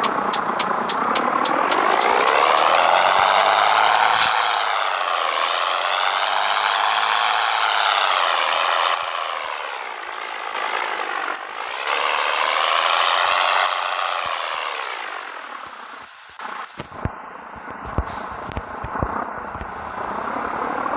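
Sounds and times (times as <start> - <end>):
truck diesel engine revving: 0.0 - 15.5.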